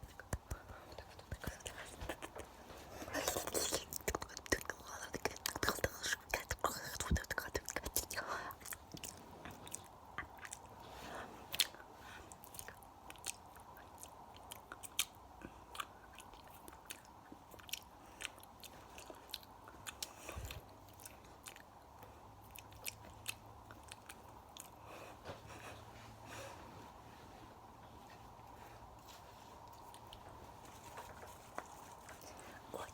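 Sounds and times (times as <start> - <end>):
mouth and hand clicks: 0.0 - 2.5.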